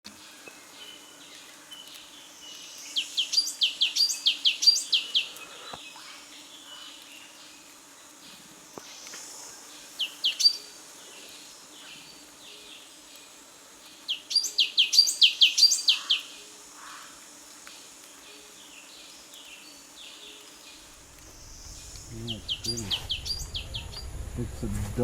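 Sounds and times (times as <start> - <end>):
faint background bird chorus: 0.1 - 24.7
bird singing sliding notes: 21.4 - 24.2.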